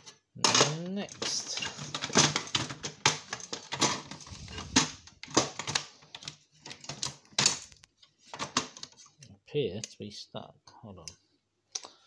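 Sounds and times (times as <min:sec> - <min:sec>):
plastic and metal parts clattering: 0:00.0 - 0:09.3.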